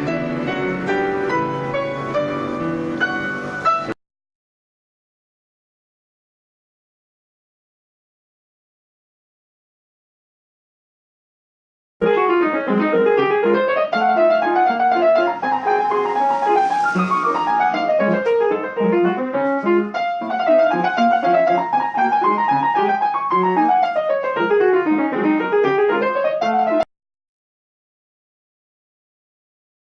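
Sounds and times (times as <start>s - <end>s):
piano arpeggio runs: 0.0s - 4.0s, 12.0s - 26.8s.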